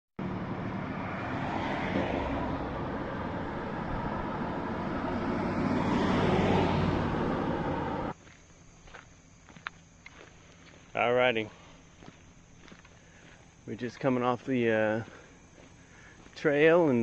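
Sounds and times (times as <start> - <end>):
engine drone: 0.2 - 8.2.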